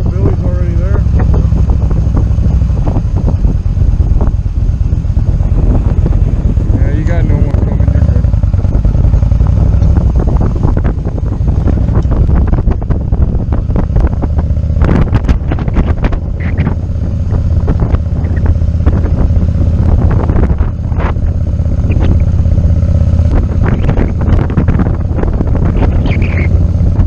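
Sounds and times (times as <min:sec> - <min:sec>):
motorcycle engine running: 0:00.0 - 0:27.0
wind buffeting microphone: 0:00.0 - 0:27.0.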